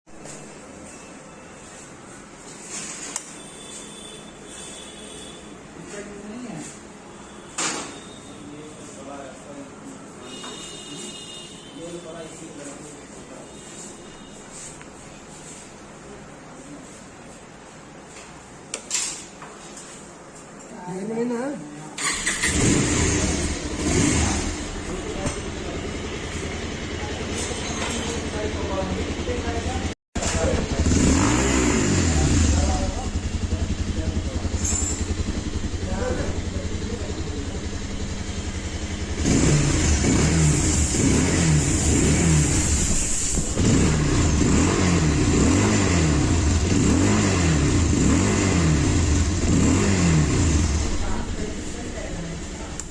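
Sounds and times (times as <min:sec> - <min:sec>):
motorcycle engine starting and idling: 0:22.0 - 0:52.9.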